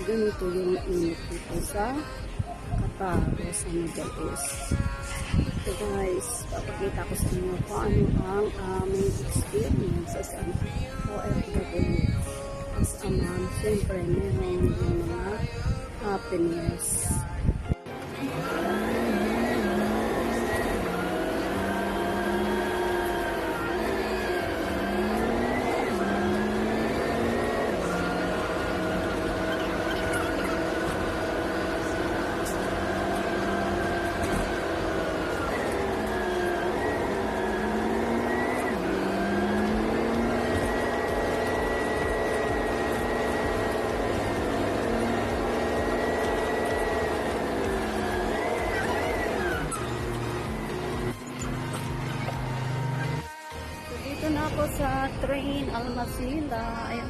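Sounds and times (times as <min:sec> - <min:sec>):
low rumble of tyres: 0:00.0 - 0:57.0
vehicle engine changing gears: 0:00.0 - 0:57.0.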